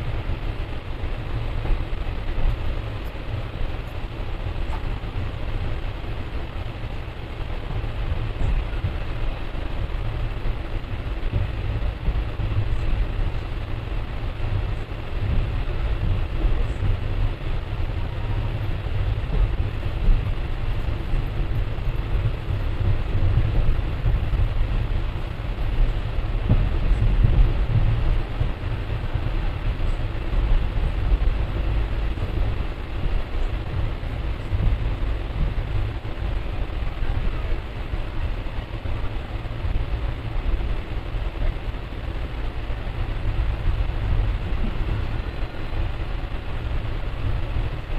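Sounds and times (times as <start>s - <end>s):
train wheels rumbling: 0.0s - 47.9s.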